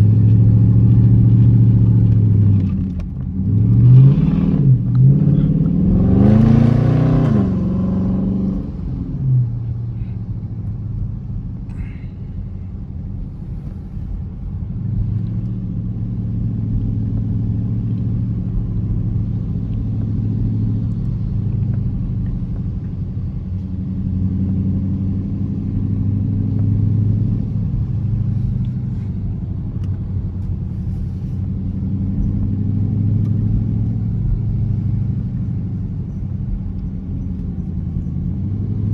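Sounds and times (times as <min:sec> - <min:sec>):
car engine revving: 0:00.0 - 0:38.9
low engine drone: 0:00.0 - 0:38.9.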